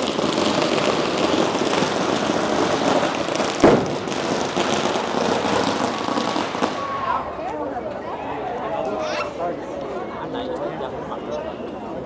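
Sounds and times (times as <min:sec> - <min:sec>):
loud firecracker bang: 0:00.0 - 0:07.4
firecrackers crackling: 0:00.0 - 0:07.5.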